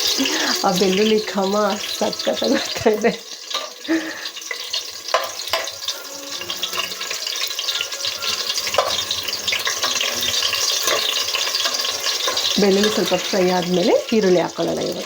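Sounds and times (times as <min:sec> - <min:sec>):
garlic sizzling in hot oil: 0:00.0 - 0:15.0.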